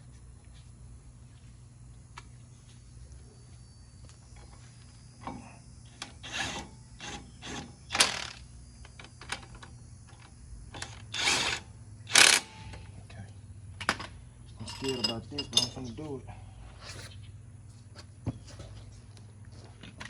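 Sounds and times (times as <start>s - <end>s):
metal hand tools clanking: 14.6s - 16.0s.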